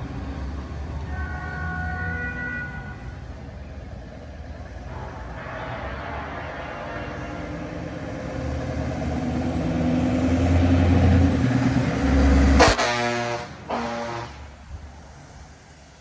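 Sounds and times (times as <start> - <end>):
truck diesel engine passing: 0.0 - 16.0
truck air horn blasts: 1.1 - 3.0, 4.9 - 8.1, 12.6 - 14.7.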